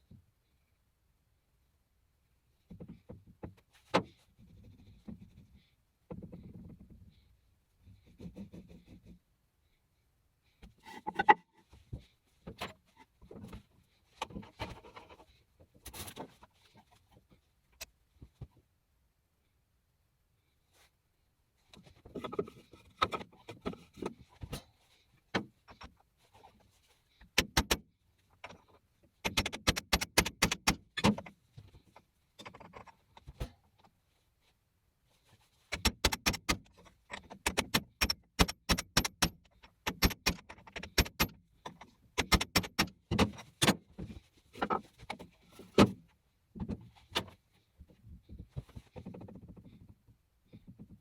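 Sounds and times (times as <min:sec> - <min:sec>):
sharp metallic clicks and clatter: 0:29.2 - 0:31.3, 0:35.7 - 0:43.8.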